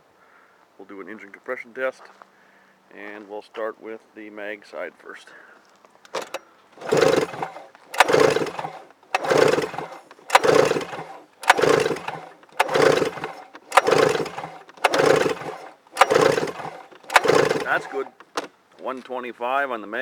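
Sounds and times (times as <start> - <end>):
sharp click: 6.1 - 10.8
snowmobile engine cranking: 6.1 - 18.5.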